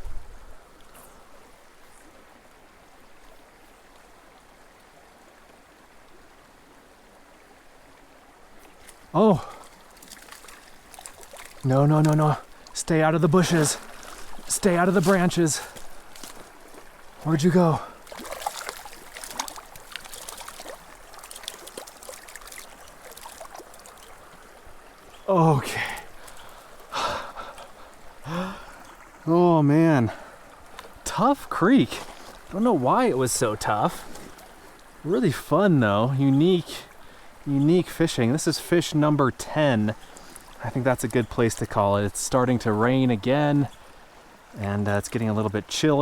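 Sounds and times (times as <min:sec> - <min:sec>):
mountain creek running: 0:00.0 - 0:46.0
water drips and plinks: 0:08.7 - 0:29.2.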